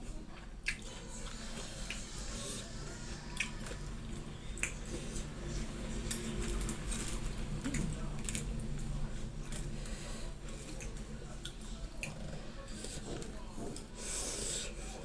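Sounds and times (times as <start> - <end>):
wet chewing and mouth smacking: 0.6 - 2.4.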